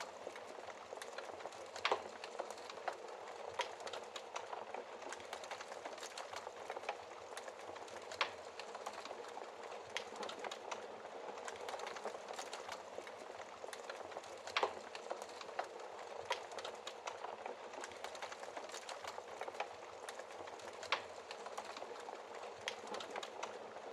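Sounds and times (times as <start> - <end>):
wood fire crackling: 0.0 - 23.9
fire pops: 11.4 - 23.5.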